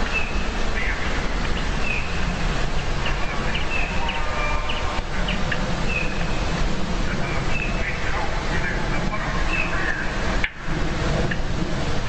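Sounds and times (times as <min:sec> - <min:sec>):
steady low rumble: 0:00.0 - 0:12.0
small birds chirping: 0:00.1 - 0:06.4.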